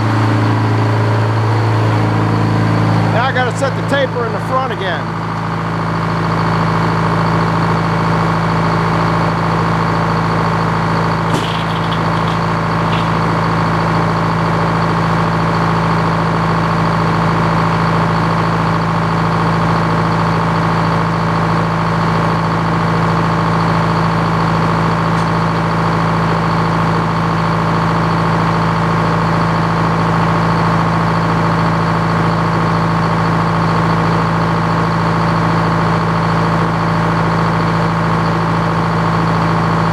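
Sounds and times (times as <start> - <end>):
sawmill engine humming: 11.3 - 14.1.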